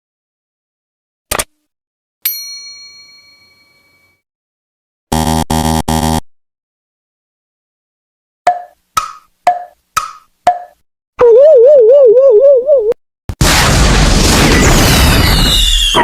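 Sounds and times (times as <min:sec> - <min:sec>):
bell ding: 0:02.2 - 0:04.2
buzzer blasts: 0:05.1 - 0:06.3.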